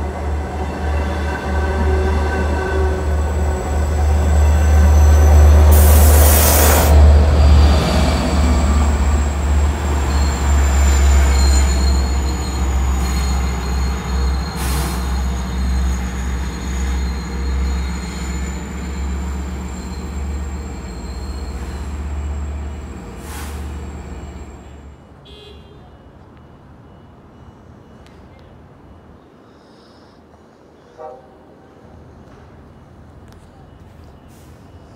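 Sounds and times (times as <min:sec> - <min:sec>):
diesel train passing: 0:00.0 - 0:25.2
high wheel squeal: 0:07.8 - 0:24.9.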